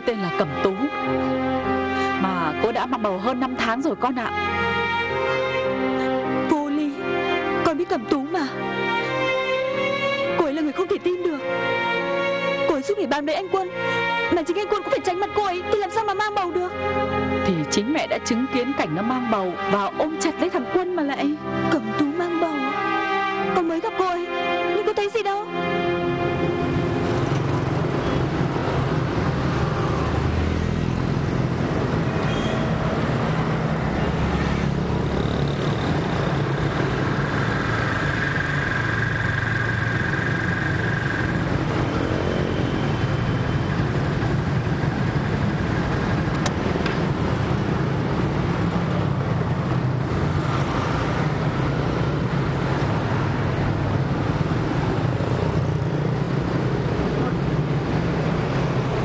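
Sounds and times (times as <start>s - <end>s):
cars passing: 0.0s - 59.0s
motorbikes passing: 0.0s - 59.0s.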